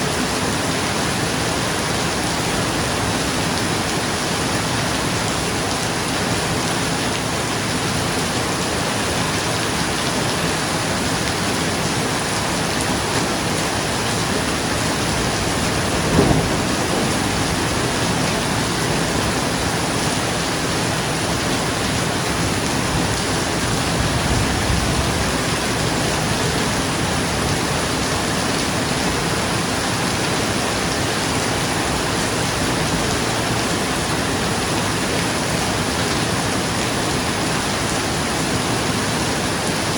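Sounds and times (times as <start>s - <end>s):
rain falling on roof: 0.0s - 39.9s
low rumble of thunder: 13.3s - 30.5s
thunder clap: 13.8s - 21.4s.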